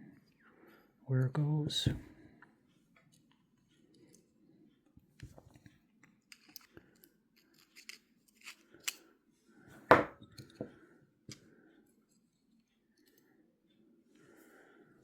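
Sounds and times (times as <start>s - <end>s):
small metal parts clicking: 6.3s - 9.0s.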